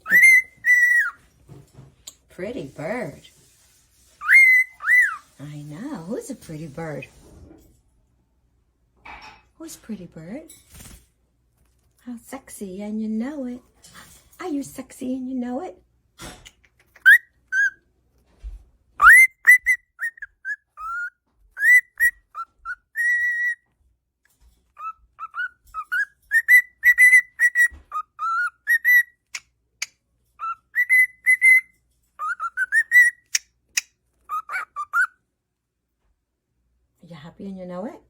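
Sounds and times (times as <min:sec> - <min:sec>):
cockatiel whistling a tune: 0:00.0 - 0:01.2, 0:04.2 - 0:05.3, 0:17.0 - 0:17.8, 0:19.0 - 0:23.6, 0:24.8 - 0:29.2, 0:30.4 - 0:33.4, 0:34.3 - 0:35.2.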